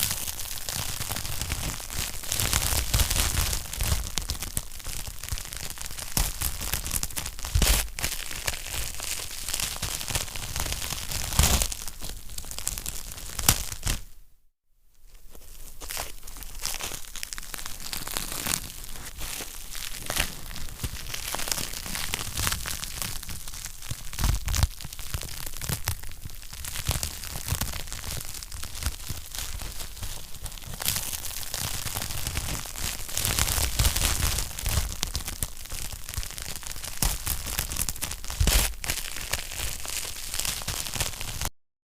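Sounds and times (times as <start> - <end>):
wood fire crackling: 0.1 - 13.7.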